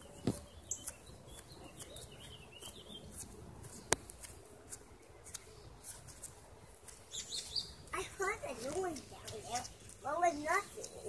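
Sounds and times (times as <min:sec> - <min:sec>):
faint bird chirps: 0:00.0 - 0:03.2, 0:07.1 - 0:07.9.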